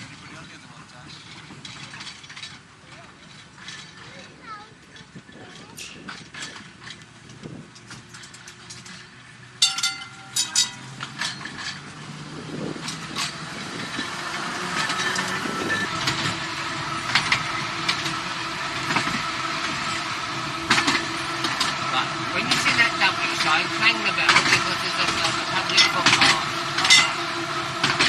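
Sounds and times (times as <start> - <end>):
electric tram rolling: 0.0 - 28.0
wheels knocking on rails: 0.0 - 28.0
tram whine: 6.6 - 28.0.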